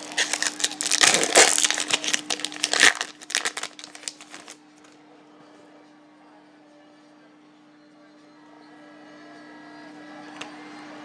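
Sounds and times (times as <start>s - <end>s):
foil wrapper crinkling and tearing: 0.0s - 4.6s.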